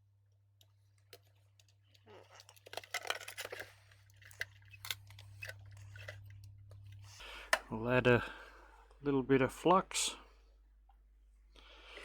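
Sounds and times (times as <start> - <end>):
small clicks taps and scraping: 0.6 - 7.7.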